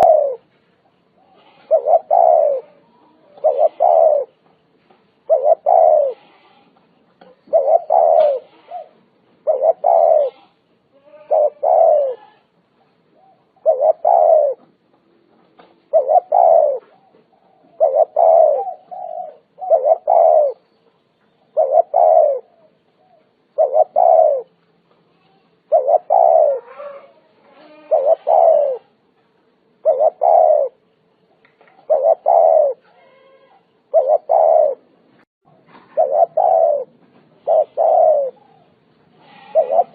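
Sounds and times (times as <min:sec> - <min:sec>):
dove cooing: 0:00.0 - 0:00.5, 0:01.2 - 0:04.4, 0:05.2 - 0:06.6, 0:07.2 - 0:12.5, 0:13.1 - 0:14.8, 0:15.6 - 0:20.6, 0:21.5 - 0:24.6, 0:25.6 - 0:29.0, 0:29.8 - 0:30.8, 0:31.7 - 0:35.0, 0:35.6 - 0:39.9.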